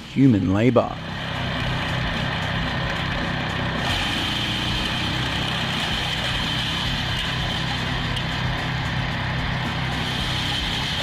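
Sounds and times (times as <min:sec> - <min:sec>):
wood shredder running: 0:00.9 - 0:11.0.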